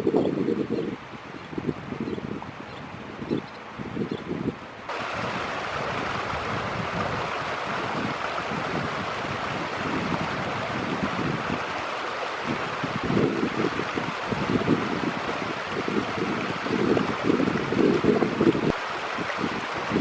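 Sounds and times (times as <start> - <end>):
wind buffeting microphone: 0.0 - 20.0
river water rushing: 4.9 - 20.0.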